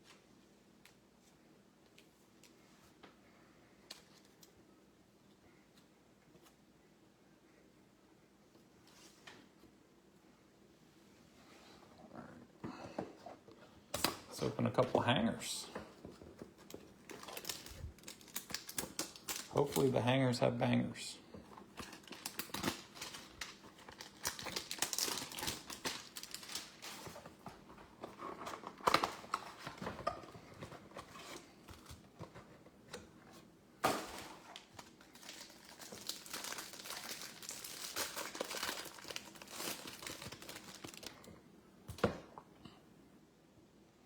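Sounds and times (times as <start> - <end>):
packaging crinkling and tearing: 16.6 - 20.0, 21.6 - 32.1, 33.8 - 41.3.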